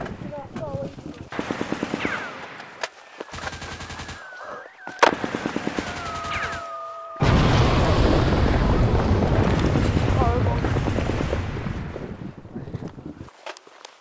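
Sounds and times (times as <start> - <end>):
automatic gunfire: 1.3 - 4.3, 5.0 - 6.6
wind on microphone: 8.0 - 13.3.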